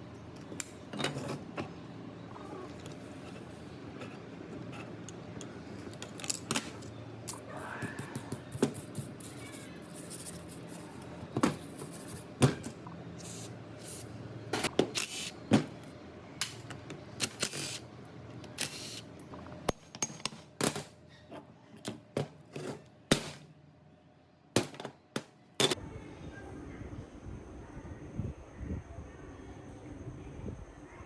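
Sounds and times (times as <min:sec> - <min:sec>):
metal tools clicking and knocking: 0:19.6 - 0:20.9.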